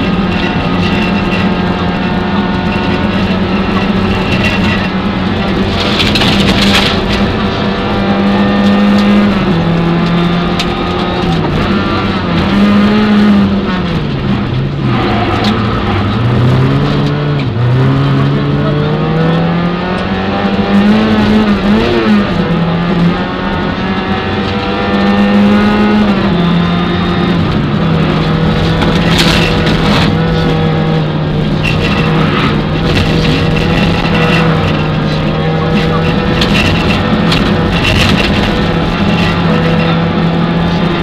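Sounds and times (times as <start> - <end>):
sharp clatters: 0.0 - 7.7, 27.6 - 40.7
rally car engine revving: 0.0 - 41.0.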